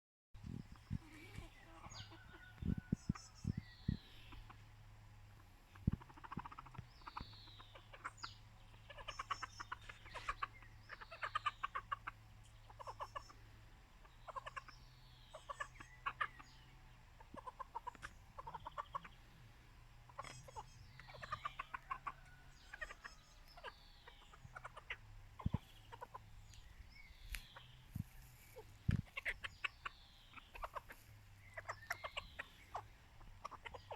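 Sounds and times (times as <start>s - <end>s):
chickens clucking: 0.4s - 33.9s
high falling chicken calls: 1.0s - 3.6s, 20.1s - 33.9s.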